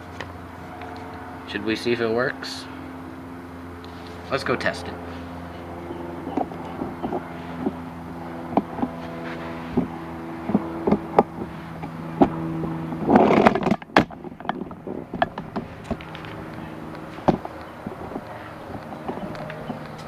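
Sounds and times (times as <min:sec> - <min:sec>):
low buzzing hum: 0:00.0 - 0:20.0
handling knocks: 0:08.4 - 0:20.0
rustling noise: 0:08.5 - 0:20.0.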